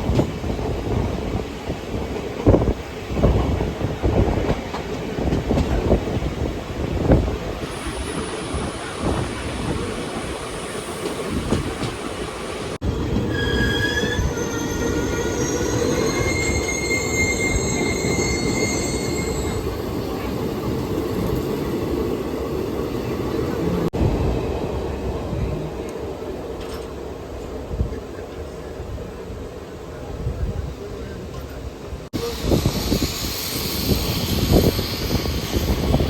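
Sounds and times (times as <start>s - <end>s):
train rolling on rails: 0.0s - 36.0s
train wheels squealing: 13.2s - 20.0s, 32.2s - 36.0s.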